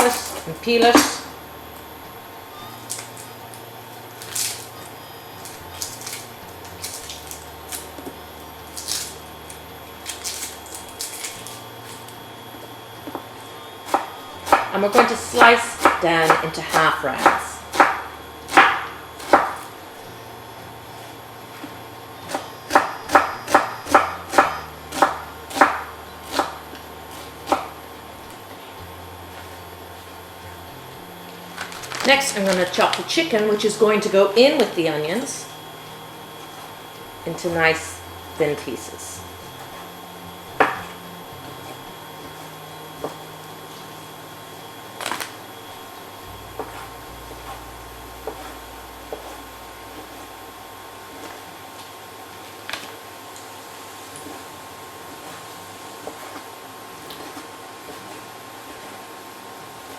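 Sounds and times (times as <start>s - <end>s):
low steady hum: 0.0s - 59.9s
knife slicing onion on board: 13.8s - 19.7s, 22.3s - 27.8s.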